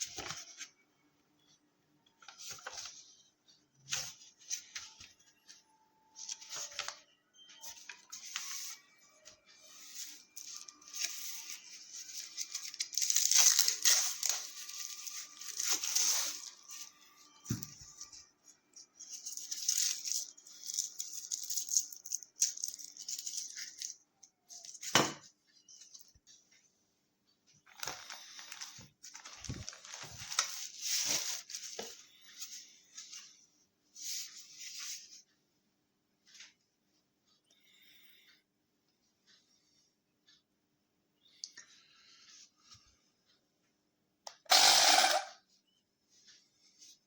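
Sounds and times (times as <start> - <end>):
rustling and crinkling objects: 0.0 - 26.8, 27.4 - 35.4, 45.5 - 47.0.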